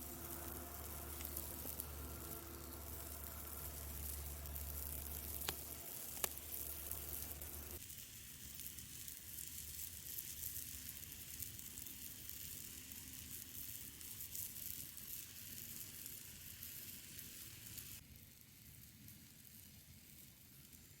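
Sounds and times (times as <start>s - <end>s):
low hum: 0.0s - 7.8s
food sizzling in a pan: 0.0s - 21.0s
sharp clicks: 4.6s - 7.8s.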